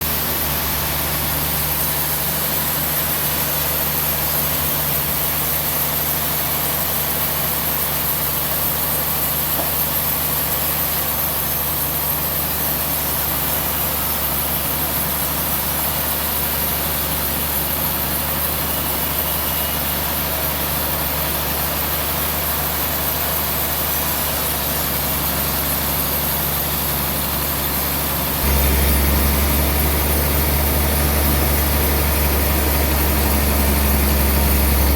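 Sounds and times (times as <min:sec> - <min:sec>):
sawmill machinery humming: 0:00.0 - 0:34.9.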